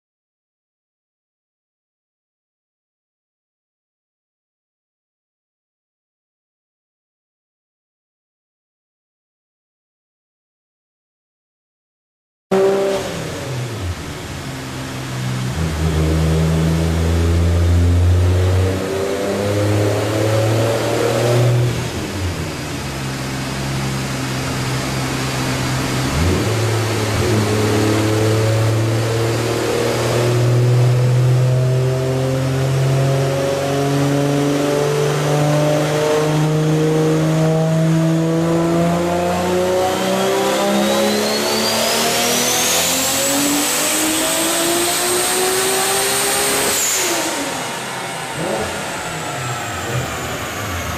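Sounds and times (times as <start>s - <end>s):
car engine revving: 12.5s - 50.9s
high rising whine: 36.4s - 50.9s.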